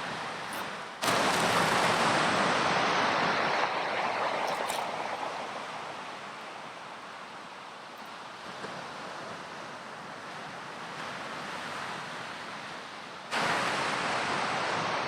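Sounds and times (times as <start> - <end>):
ocean wave rushing in: 0.0 - 10.1, 13.3 - 15.0.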